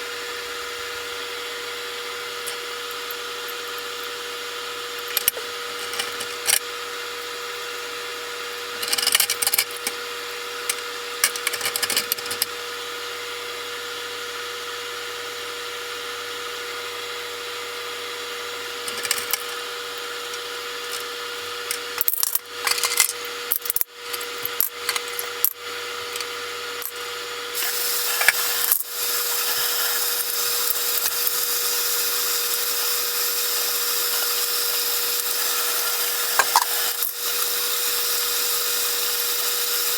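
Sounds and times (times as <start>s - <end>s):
machine hum: 27.6s - 39.9s
steady hiss: 27.6s - 39.9s.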